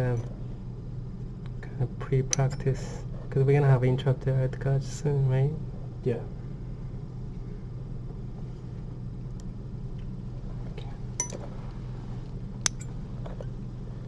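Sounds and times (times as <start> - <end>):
steady low hum: 0.0 - 14.0
metal surgical instruments clinking: 11.2 - 11.7, 12.7 - 13.5.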